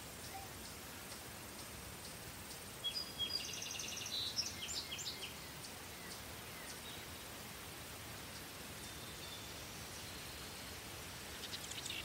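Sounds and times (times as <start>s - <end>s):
soft background hiss: 0.0s - 12.0s
songbird trilling: 11.3s - 12.0s.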